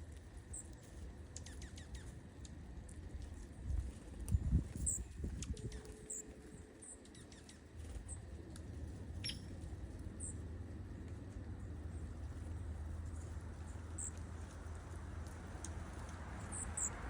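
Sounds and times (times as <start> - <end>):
low steady rumble: 0.0 - 17.0
small birds chirping: 0.4 - 2.6, 3.8 - 8.3, 9.1 - 10.4, 11.6 - 17.0.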